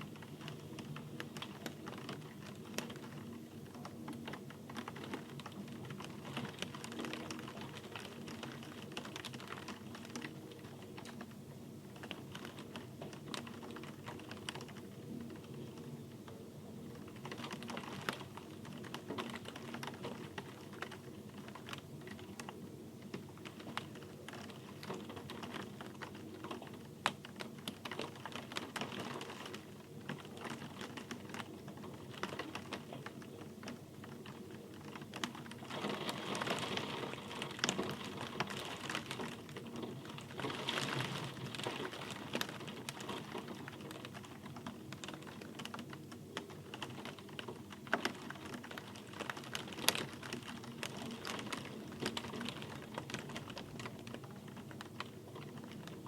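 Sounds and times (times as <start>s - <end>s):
rain falling: 0.0s - 11.3s, 23.1s - 56.0s
raindrops tapping close by: 0.0s - 11.3s, 16.9s - 56.0s.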